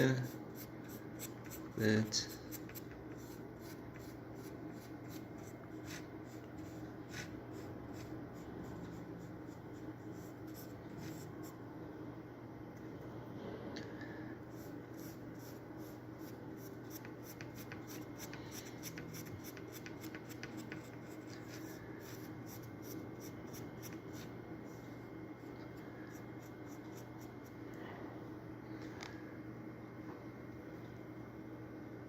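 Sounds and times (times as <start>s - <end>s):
paintbrush strokes scratching: 0.0s - 11.6s, 14.5s - 24.9s
low steady hum: 0.0s - 32.0s.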